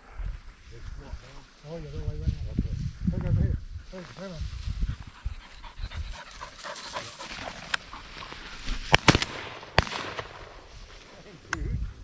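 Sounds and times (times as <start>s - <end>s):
dog: 5.0s - 8.5s
shotgun shots: 8.8s - 10.7s.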